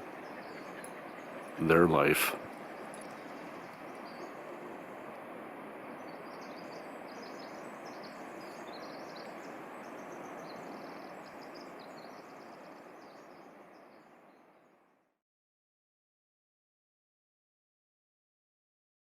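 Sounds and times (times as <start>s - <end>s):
small birds chirping: 0.0s - 5.2s, 5.8s - 14.7s.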